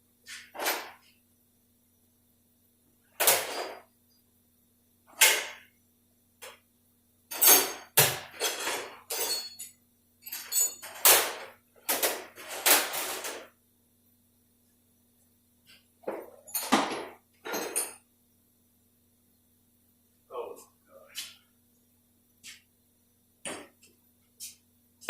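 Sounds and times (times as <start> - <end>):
metal tools clanking: 7.3 - 11.4, 16.2 - 18.0.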